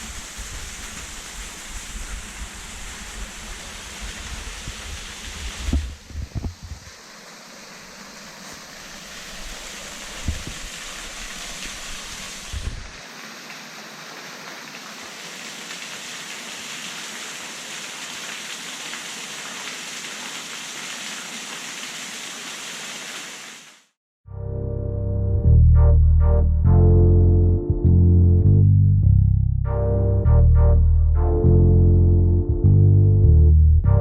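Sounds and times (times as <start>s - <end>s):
waterfall splashing: 0.0s - 24.0s
wind bumps on microphone: 4.0s - 6.9s, 10.2s - 10.8s, 12.4s - 13.0s.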